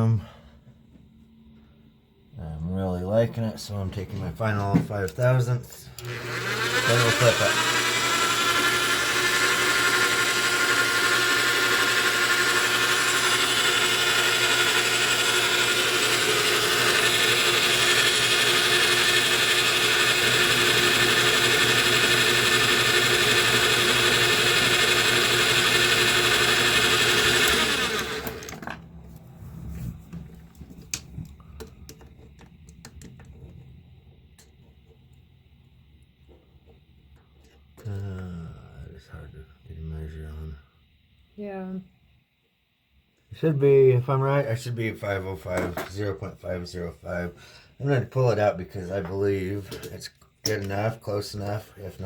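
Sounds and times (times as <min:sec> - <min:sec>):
machine winding down: 0:05.1 - 0:28.9
metal lathe whining: 0:06.0 - 0:28.8.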